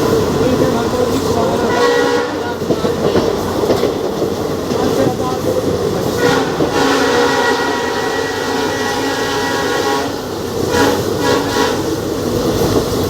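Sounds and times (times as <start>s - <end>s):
train running on rails: 0.0s - 13.0s
locomotive horn: 1.7s - 2.6s, 6.2s - 12.0s.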